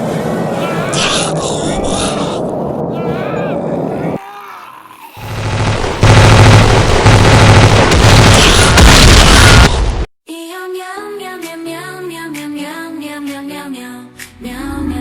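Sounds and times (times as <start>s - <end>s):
loud rumbling boom: 5.2s - 10.1s.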